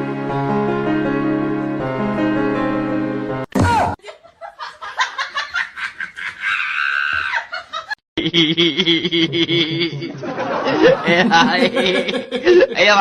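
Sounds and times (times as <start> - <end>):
people laughing and snickering: 4.0 - 13.0
high drawn-out cry: 6.2 - 7.6.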